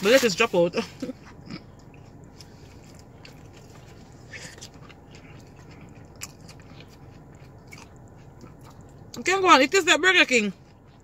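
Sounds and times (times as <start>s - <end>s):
steady low car cabin hum: 0.0s - 11.0s
person chewing sandwich: 1.0s - 9.2s, 10.6s - 11.0s.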